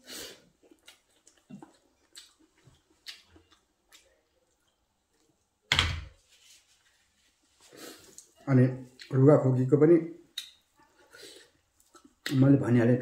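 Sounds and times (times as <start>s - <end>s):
wet chewing and lip-smacking: 0.5s - 5.3s.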